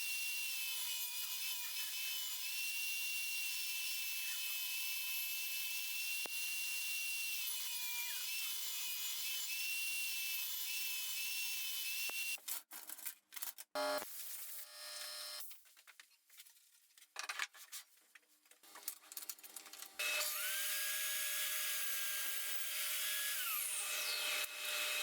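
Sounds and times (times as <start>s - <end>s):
power tool whining on wood: 0.4s - 12.4s, 14.6s - 15.4s, 19.8s - 25.0s.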